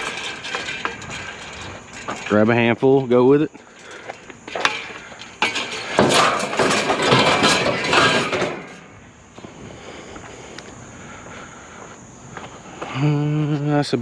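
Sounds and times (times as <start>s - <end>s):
metal parts clattering onto scrap: 0.0s - 8.9s.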